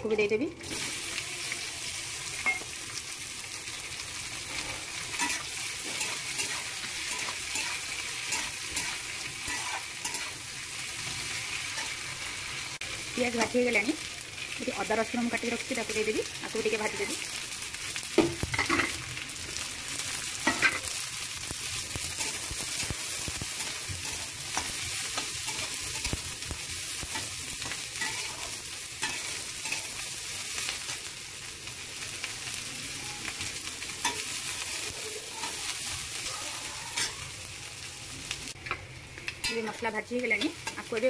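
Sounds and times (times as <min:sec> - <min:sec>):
food sizzling in hot oil: 0:00.0 - 0:41.0
metal spatula scraping a pan: 0:04.5 - 0:10.4, 0:20.4 - 0:20.9, 0:27.1 - 0:30.0.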